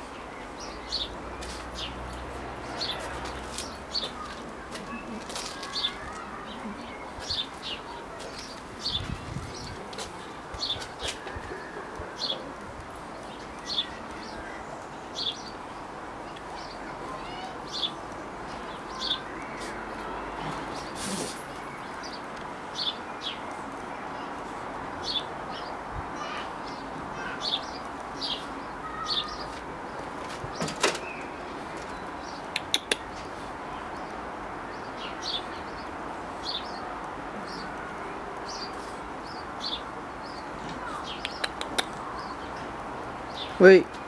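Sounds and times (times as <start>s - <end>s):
small birds chirping: 0.0s - 44.0s
steady background noise: 0.0s - 44.0s
sharp clicks: 32.5s - 33.1s, 41.2s - 42.0s.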